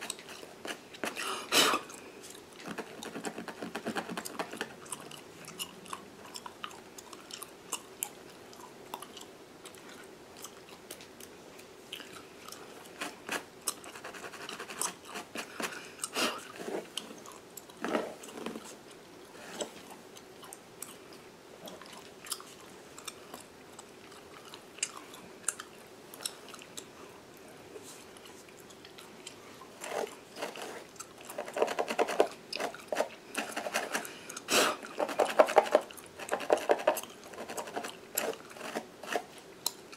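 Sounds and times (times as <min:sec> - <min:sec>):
gum chewing and smacking: 0:00.0 - 0:27.5, 0:28.1 - 0:39.9.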